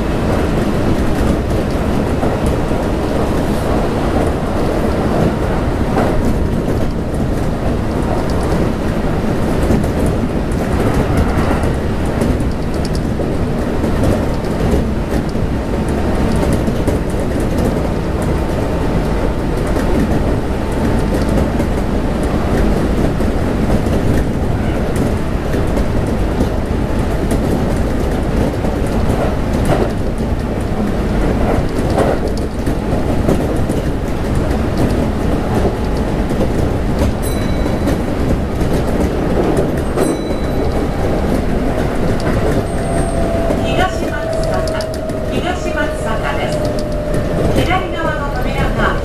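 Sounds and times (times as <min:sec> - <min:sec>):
train wheels rumbling on rails: 0:00.0 - 0:49.0
faint track clicks: 0:12.4 - 0:17.3, 0:38.6 - 0:49.0.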